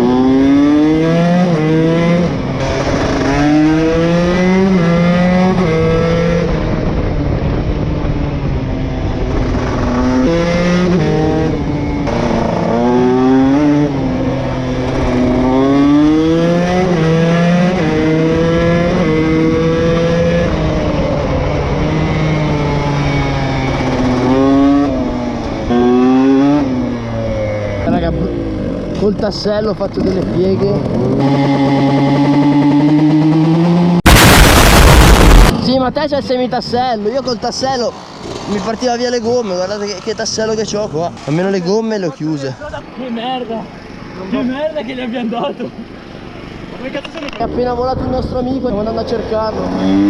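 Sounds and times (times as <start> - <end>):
dirt bike engine revving hard: 0.0 - 6.9, 9.2 - 28.9, 30.0 - 35.5, 37.8 - 40.2, 49.5 - 50.0.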